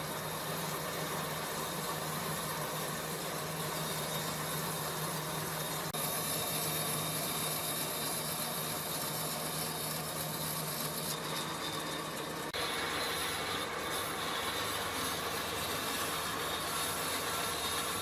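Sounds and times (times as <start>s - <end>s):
power tool whirring: 3.6s - 18.0s.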